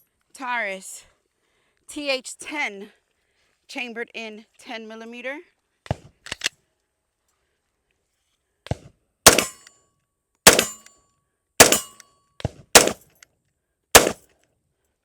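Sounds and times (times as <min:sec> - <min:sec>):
pistol shots: 0:09.3 - 0:09.7, 0:10.5 - 0:10.9, 0:11.6 - 0:12.0, 0:12.8 - 0:13.0, 0:14.0 - 0:14.2.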